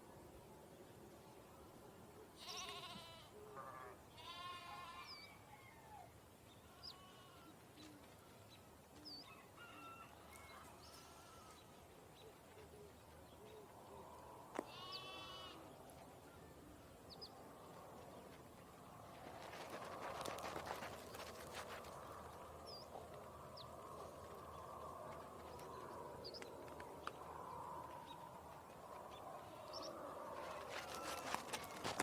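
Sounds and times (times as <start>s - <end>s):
sheep bleating: 2.4s - 5.2s, 10.9s - 11.6s, 14.6s - 15.7s.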